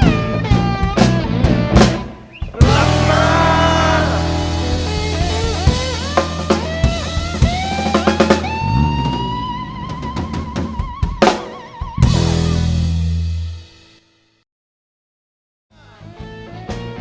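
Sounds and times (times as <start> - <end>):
drum fills: 2.5 - 8.4
blues band final chord: 2.6 - 5.9.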